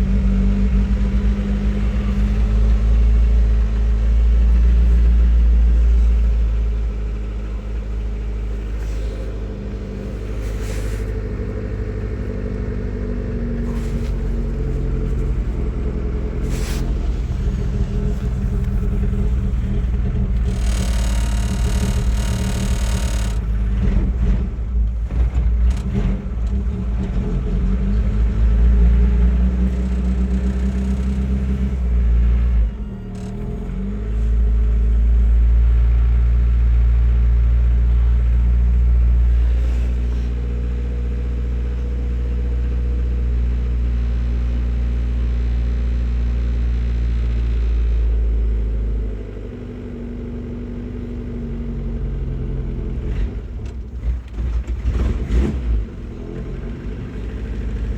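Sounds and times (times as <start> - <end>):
car engine running: 0.0 - 57.9.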